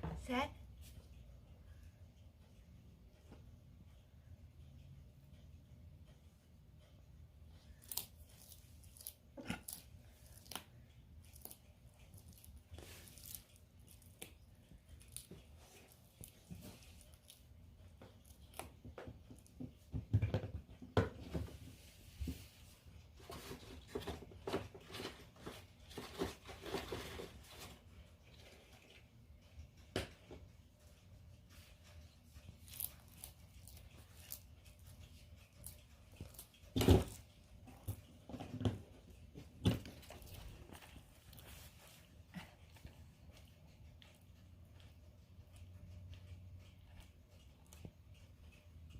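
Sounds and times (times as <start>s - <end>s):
lizard crunching insects: 7.8s - 18.8s, 31.6s - 38.0s.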